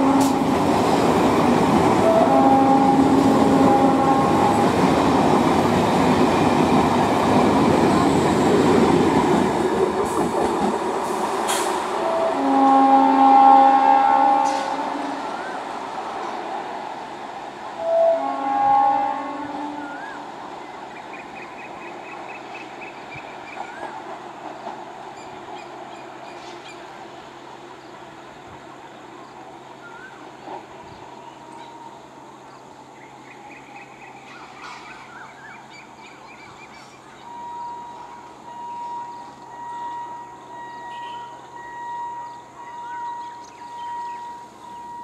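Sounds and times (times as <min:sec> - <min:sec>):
electric train rumbling: 0:00.0 - 0:45.0
birds chirping and whistling: 0:42.2 - 0:45.0.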